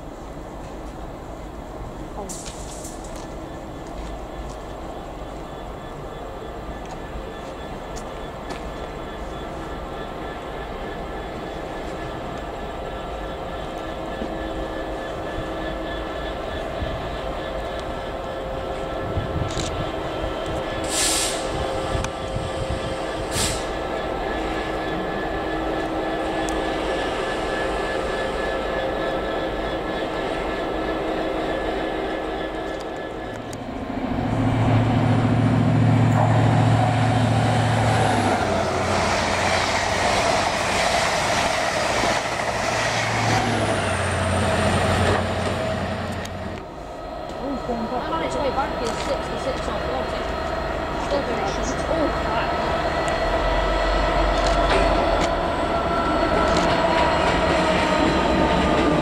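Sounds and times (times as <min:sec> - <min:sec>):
diesel locomotive engine drone: 0:00.0 - 0:59.0
train passing at speed: 0:00.0 - 0:59.0
short high hisses: 0:20.8 - 0:21.5, 0:23.3 - 0:23.8.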